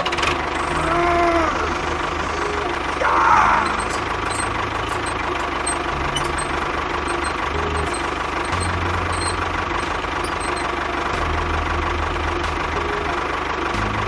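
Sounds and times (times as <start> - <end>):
tractor engine idling: 0.0 - 14.0
brief warbling tone: 3.6 - 10.6.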